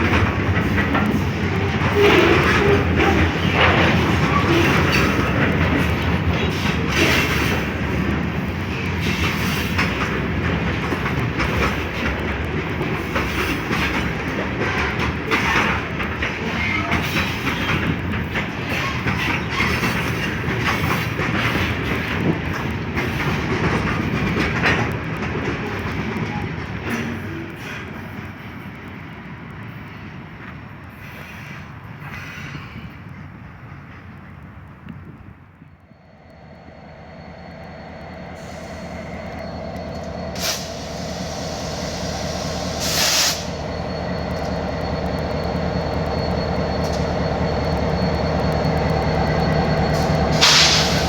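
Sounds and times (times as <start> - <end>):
train wheels clacking over rail joints: 0.0 - 35.3, 38.4 - 51.0.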